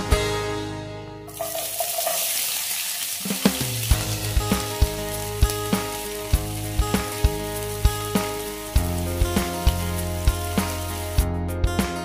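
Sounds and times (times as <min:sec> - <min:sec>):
food sizzling in hot oil: 0:01.3 - 0:11.3
background music with steady beat: 0:03.4 - 0:12.0.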